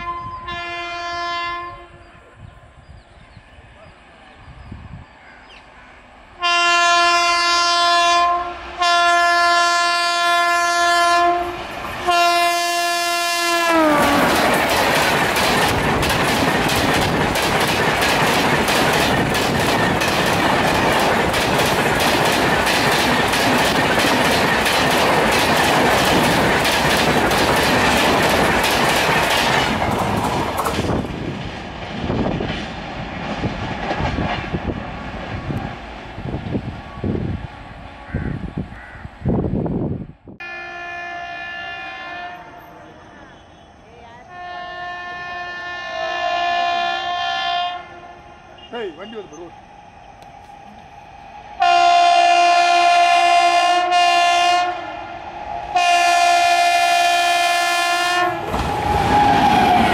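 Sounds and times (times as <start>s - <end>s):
train horn blasts: 0.0s - 2.4s, 6.4s - 14.4s, 40.4s - 43.7s, 44.3s - 49.3s, 51.6s - 59.9s
train wheels clacking over rail joints: 13.9s - 31.4s.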